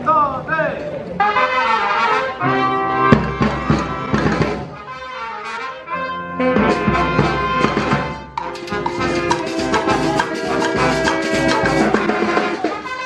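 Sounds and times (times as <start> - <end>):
brass band playing: 1.2 - 13.0
drums: 2.7 - 4.8, 6.4 - 13.0.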